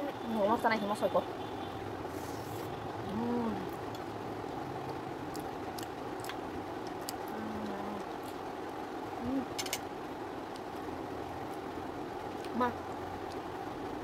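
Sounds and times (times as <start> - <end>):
steady background hum: 0.0 - 14.0
closed-mouth hum: 1.2 - 9.8
soft chewing: 4.8 - 8.4.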